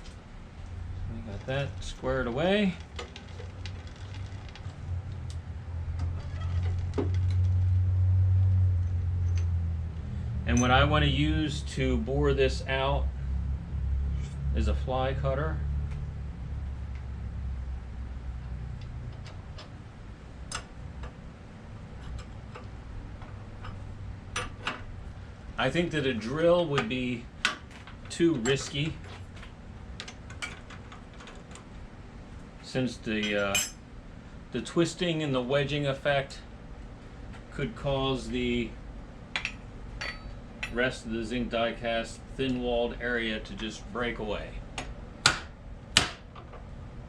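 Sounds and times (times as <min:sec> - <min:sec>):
low steady hum: 0:00.0 - 0:47.0
rising squeak: 0:06.1 - 0:06.8.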